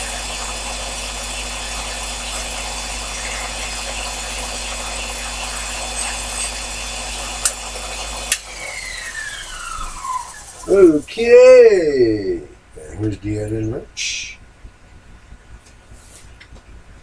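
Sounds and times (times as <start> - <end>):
lathe running with low hum: 0.0 - 13.0.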